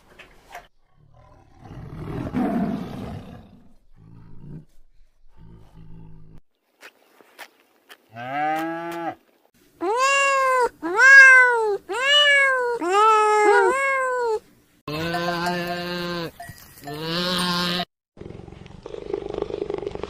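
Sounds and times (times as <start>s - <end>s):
cheetah purring rumble: 0.8s - 6.4s, 18.2s - 20.0s
kitten mewing: 9.8s - 14.4s
goat bleating: 9.9s - 17.9s.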